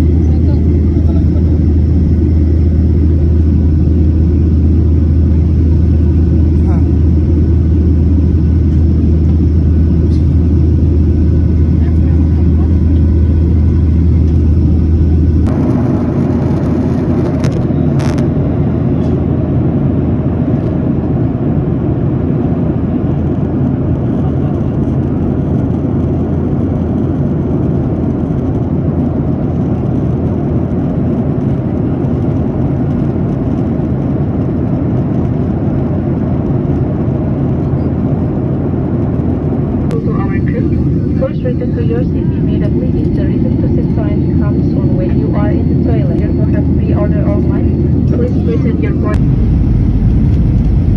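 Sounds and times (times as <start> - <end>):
deep hum: 0.0 - 21.2, 24.6 - 50.9
jet engines low rumble: 0.0 - 50.9.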